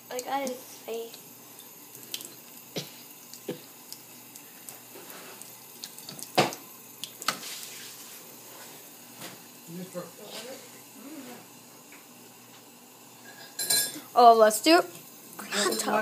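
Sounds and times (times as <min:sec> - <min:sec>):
faucet running into sink: 0:00.0 - 0:08.0, 0:11.9 - 0:16.0
cat drinking splashes: 0:01.7 - 0:07.6.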